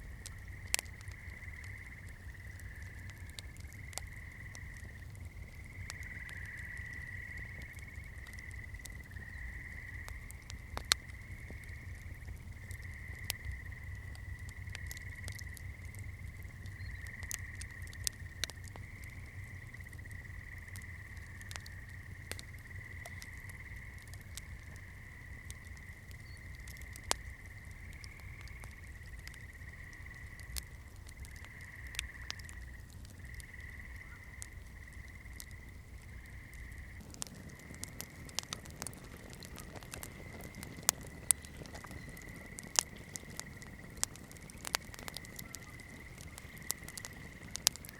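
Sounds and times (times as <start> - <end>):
low steady rumble: 0.0 - 47.9
wood fire crackling: 0.0 - 47.9.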